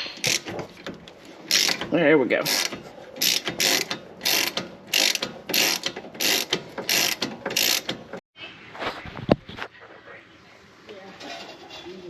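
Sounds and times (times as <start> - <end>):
ratchet wrench clicking: 0.2 - 0.5, 1.5 - 8.0.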